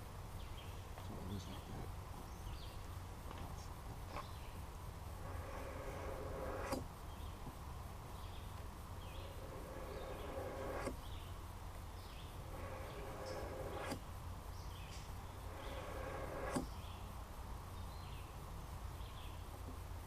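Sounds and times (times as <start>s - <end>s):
faint bird or insect chirps: 0.0s - 20.0s
knife grating on sharpening stone: 5.2s - 6.8s, 9.4s - 11.0s, 12.5s - 14.0s, 15.5s - 16.7s.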